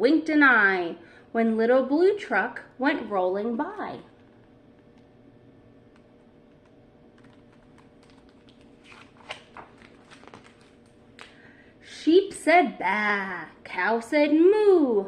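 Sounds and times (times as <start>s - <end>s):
low room hum: 0.0s - 15.0s
book page turning: 7.2s - 11.4s.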